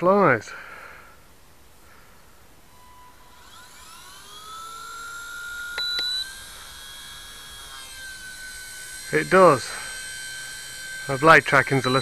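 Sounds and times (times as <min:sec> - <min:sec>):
rc helicopter rotor whine: 0:01.8 - 0:12.0
sharp clicks: 0:05.7 - 0:06.4.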